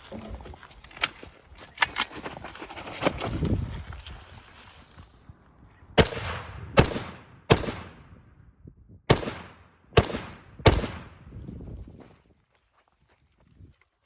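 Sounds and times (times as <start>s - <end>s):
rifle shots with echo: 6.0s - 8.3s, 9.1s - 11.2s.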